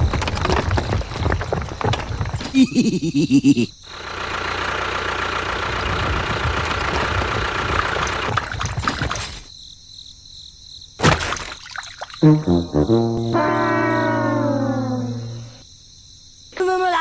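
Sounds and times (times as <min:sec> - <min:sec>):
engine running with low rumble: 0:03.9 - 0:09.5.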